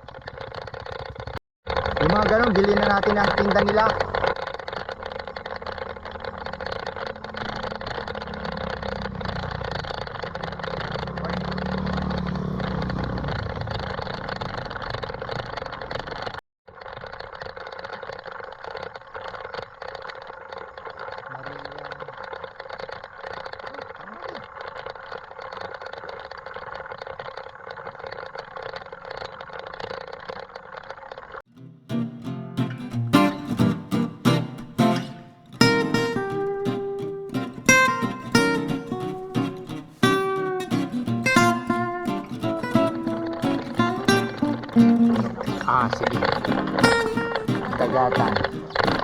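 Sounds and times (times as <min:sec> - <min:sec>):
mountain bike tyre rumble: 0:00.0 - 0:21.1.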